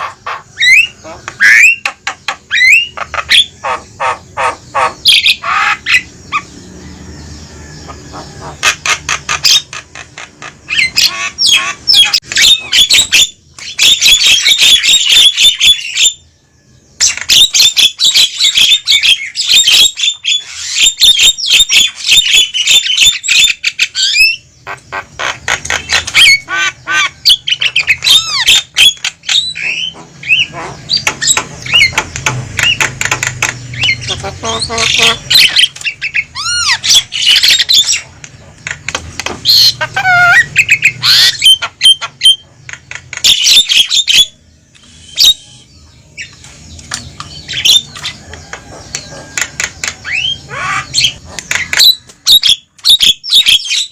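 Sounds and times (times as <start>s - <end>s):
mynas chattering and squawking: 0.0s - 6.8s, 17.0s - 46.4s, 47.0s - 53.9s
bird whistled notes: 44.8s - 45.7s.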